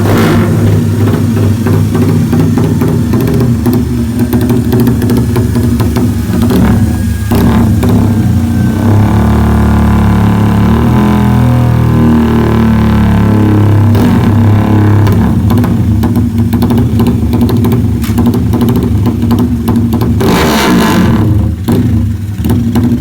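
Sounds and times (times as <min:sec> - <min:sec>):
exhaust crackle: 0:00.0 - 0:23.0
motorcycle engine revving: 0:00.0 - 0:23.0.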